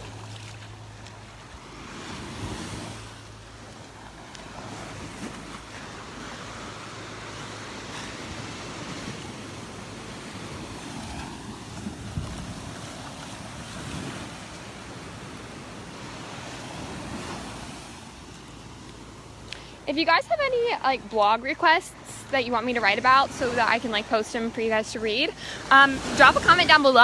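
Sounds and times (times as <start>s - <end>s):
surf washing onto beach: 0.0s - 27.0s
wind buffeting microphone: 3.9s - 18.4s.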